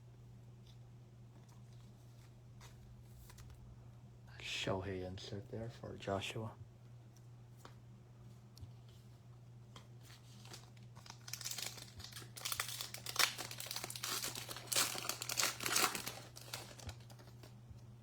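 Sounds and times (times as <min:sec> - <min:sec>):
wrapper tearing and crinkling: 0:10.2 - 0:17.5.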